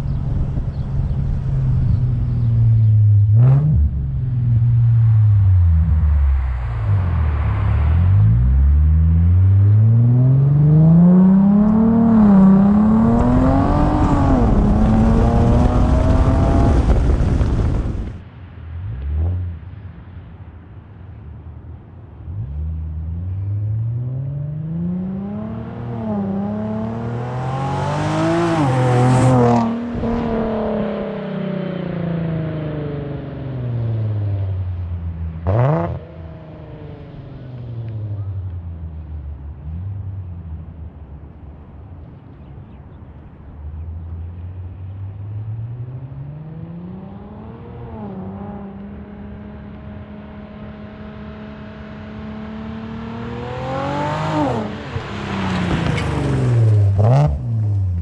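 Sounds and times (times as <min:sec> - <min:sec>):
car engine revving through gears: 0:09.6 - 0:18.1, 0:24.0 - 0:32.7, 0:35.4 - 0:36.2, 0:45.8 - 0:58.0.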